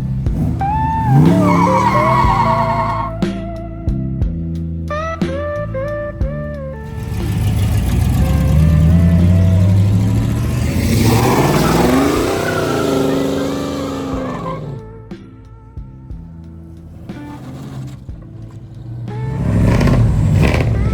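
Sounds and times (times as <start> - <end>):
background music: 0.0 - 20.9
car engine revving past: 6.8 - 14.8, 16.8 - 20.9.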